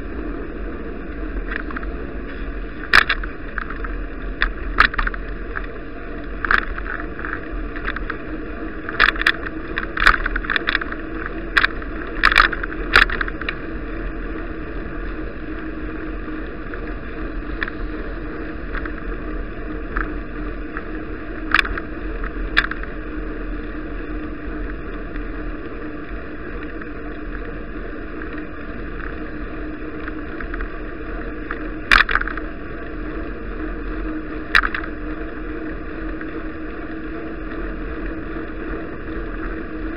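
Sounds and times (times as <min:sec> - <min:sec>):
bicycle riding on snowy road: 0:00.0 - 0:39.9
sharp rattles and knocks: 0:02.9 - 0:05.7, 0:08.8 - 0:13.6, 0:31.5 - 0:32.4.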